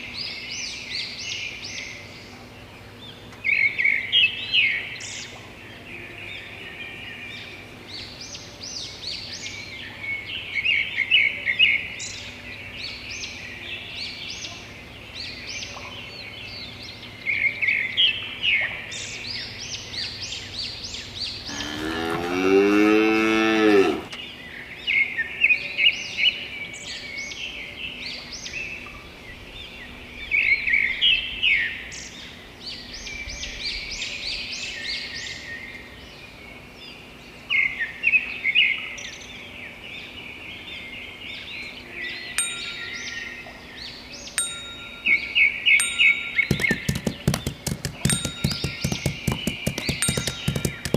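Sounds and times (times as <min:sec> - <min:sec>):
small birds chirping: 0:00.0 - 0:50.9
cow mooing: 0:21.5 - 0:24.2.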